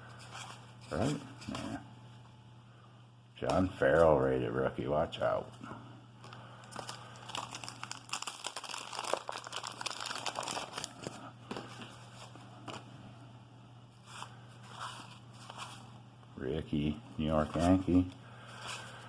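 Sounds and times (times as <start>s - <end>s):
wax paper wrapper crinkling: 6.2s - 12.3s
cards rustling: 6.2s - 12.9s.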